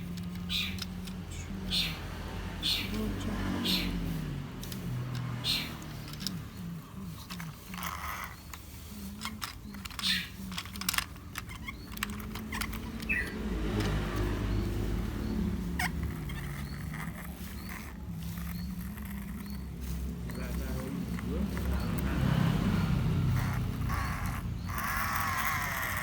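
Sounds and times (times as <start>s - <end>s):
plastic toy parts clicking: 0.0s - 1.3s, 4.6s - 6.5s, 7.2s - 14.3s.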